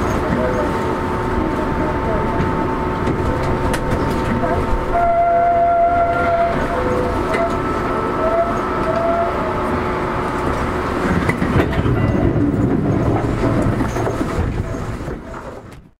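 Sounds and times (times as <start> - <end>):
train rumble and wheel clatter: 0.0 - 16.0.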